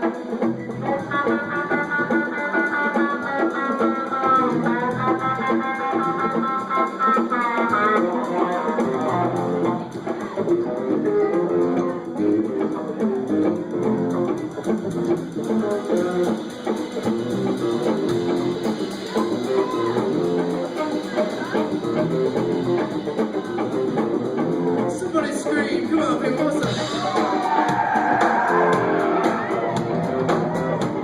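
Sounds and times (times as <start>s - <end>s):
bass guitar: 0.0s - 31.0s
lead guitar: 0.0s - 31.0s
live band playing: 0.0s - 31.0s.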